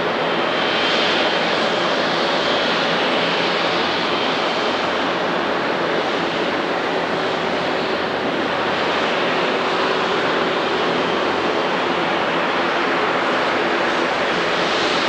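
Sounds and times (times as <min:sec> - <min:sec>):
jet engines at high power: 0:00.0 - 0:15.0.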